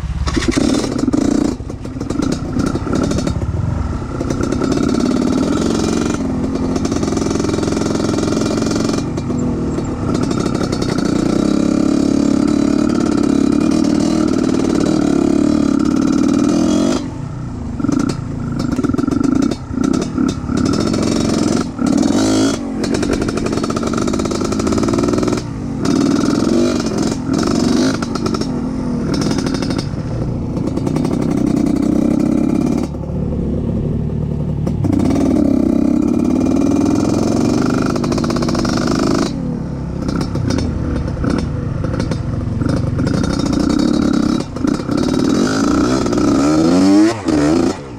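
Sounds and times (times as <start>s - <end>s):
engine clatter: 0.0s - 47.9s
motorcycle engine revving: 0.0s - 47.9s.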